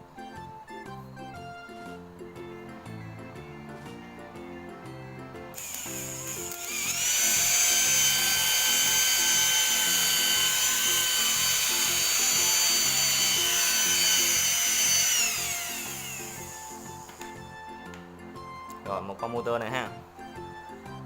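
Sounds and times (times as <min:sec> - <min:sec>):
background music: 0:00.0 - 0:21.0
electric motor whine: 0:05.6 - 0:17.6.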